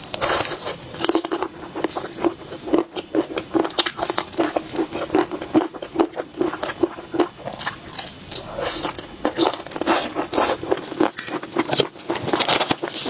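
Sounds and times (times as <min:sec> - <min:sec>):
close chewing crunches: 0:00.0 - 0:13.0.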